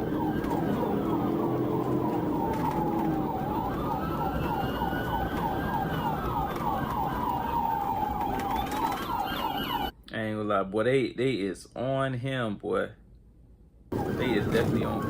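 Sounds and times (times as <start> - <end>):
police siren wailing: 0.0 - 9.9, 13.9 - 15.0
police siren yelping: 0.0 - 9.9, 13.9 - 15.0
low road noise: 0.0 - 10.0, 13.9 - 15.0.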